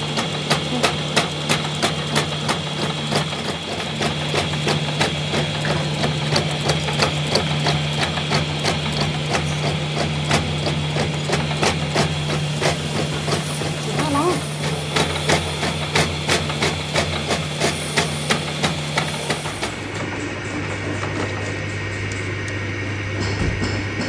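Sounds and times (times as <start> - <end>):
running machine hum: 0.0 - 24.0.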